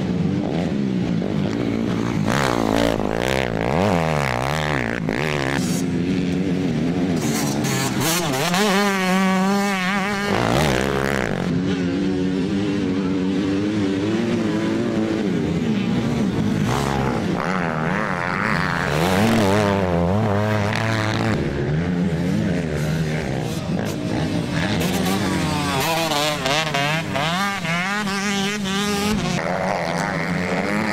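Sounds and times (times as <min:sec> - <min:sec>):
motocross bike engines revving: 0:00.0 - 0:30.9.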